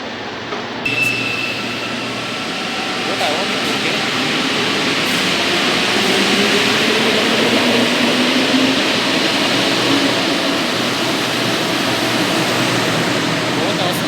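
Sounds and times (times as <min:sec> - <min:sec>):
train rushing through station: 0:00.0 - 0:14.0.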